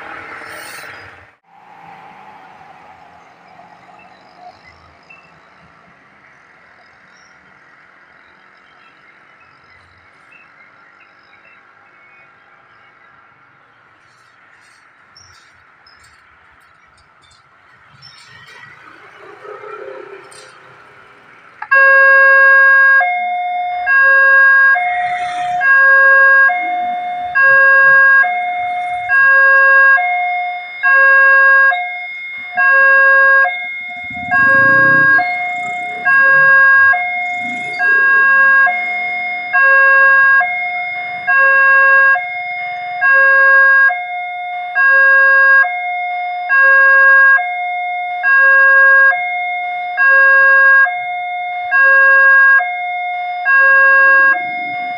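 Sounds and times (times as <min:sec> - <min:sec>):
level crossing two-tone alarm: 0:21.6 - 0:54.9.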